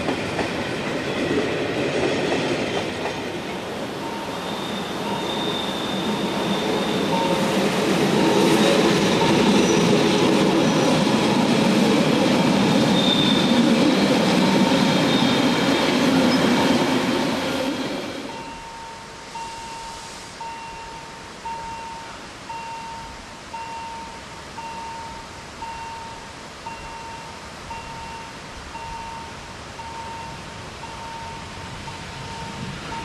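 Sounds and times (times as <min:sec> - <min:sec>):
train wheels rumbling over rails: 0:00.0 - 0:21.0
faint high wheel squeal: 0:04.0 - 0:07.6, 0:12.9 - 0:13.7, 0:15.0 - 0:15.6
warning bell ringing: 0:04.0 - 0:07.6, 0:18.4 - 0:33.0.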